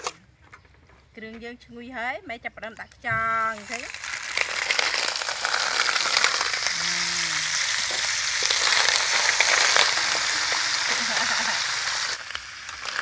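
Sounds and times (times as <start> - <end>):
snails frying in hot oil: 3.4 - 13.0.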